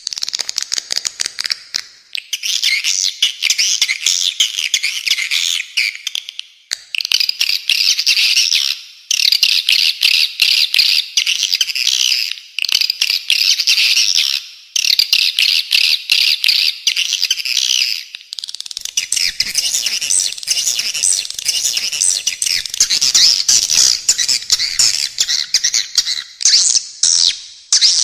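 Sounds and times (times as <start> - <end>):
rapid high bird chattering: 18.8 - 28.0.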